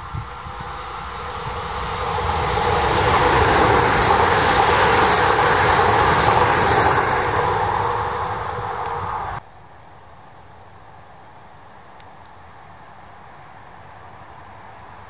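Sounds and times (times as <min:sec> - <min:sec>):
train motor hum: 0:00.0 - 0:09.4
train wheels on rails: 0:00.0 - 0:09.4.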